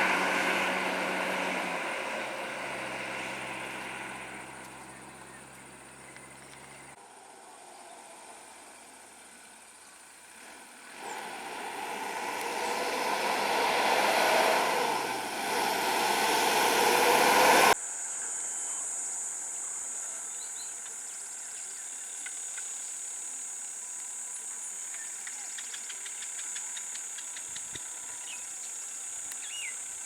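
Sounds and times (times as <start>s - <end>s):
vehicle engine and road noise: 0.0s - 17.8s.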